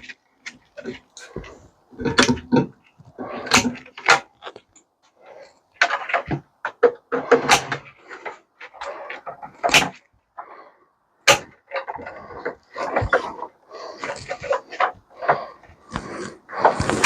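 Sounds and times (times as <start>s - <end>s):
metal parts rattling and scraping: 11.3s - 17.0s.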